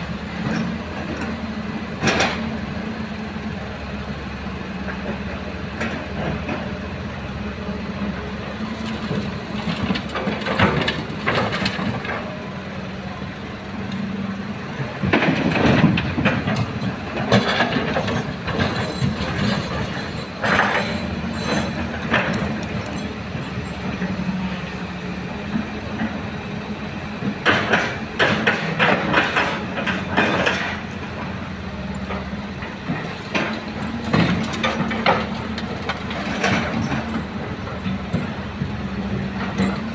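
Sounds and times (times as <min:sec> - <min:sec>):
excavator diesel engine running: 0:00.0 - 0:39.9
clanking and rattling: 0:15.0 - 0:24.1, 0:27.2 - 0:31.3, 0:32.0 - 0:38.4.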